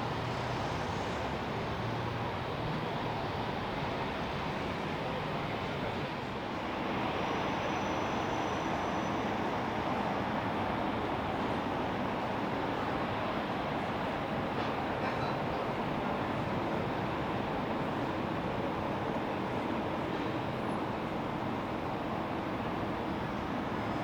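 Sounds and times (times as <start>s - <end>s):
jet aircraft engine noise: 0.0s - 24.0s.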